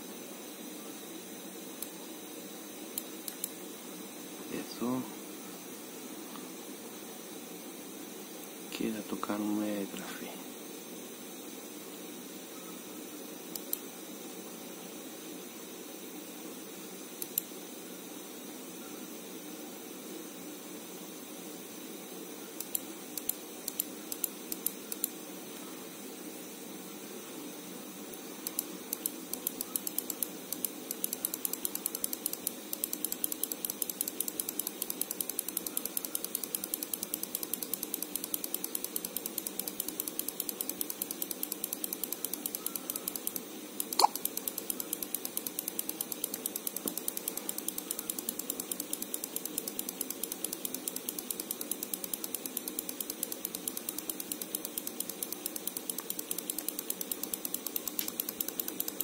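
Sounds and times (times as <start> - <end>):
rapid mechanical clicking: 3.0 - 3.6, 13.5 - 13.8, 17.2 - 17.5, 22.6 - 25.1, 28.1 - 59.0.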